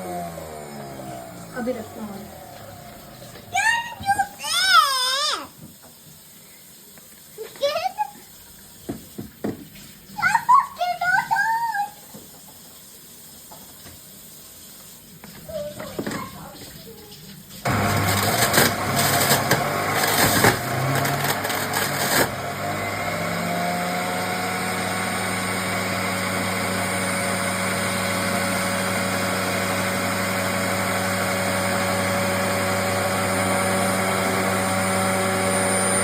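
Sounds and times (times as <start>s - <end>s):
mixer grinder motor humming: 0.0s - 4.3s, 17.7s - 36.0s
vegetables crunching in grinder: 17.7s - 30.4s.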